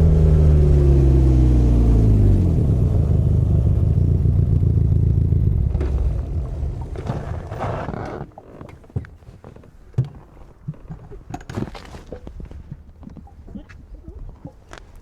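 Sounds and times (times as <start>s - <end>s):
motorcycle engine rumble: 0.0s - 8.6s.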